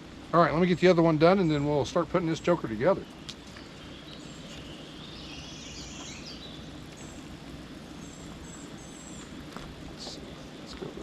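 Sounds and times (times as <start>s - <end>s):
outdoor background hiss: 0.0s - 11.0s
bird chirps: 1.4s - 7.3s, 7.9s - 9.4s.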